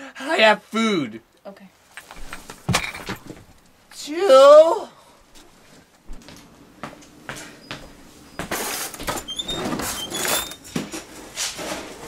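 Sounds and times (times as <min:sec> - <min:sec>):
things rustling and clattering: 0:01.9 - 0:03.8, 0:07.3 - 0:12.0
high squeaks: 0:08.3 - 0:10.8
cupboard door opening: 0:08.4 - 0:11.1.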